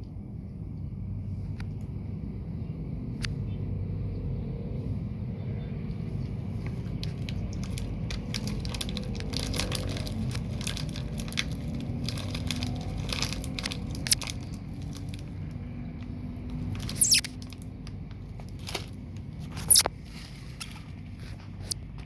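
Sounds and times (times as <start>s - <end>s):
street traffic hum: 0.0s - 22.0s
snack packet crinkling: 6.8s - 15.6s, 16.5s - 19.9s
person crunching chips: 6.9s - 15.4s, 16.6s - 17.6s.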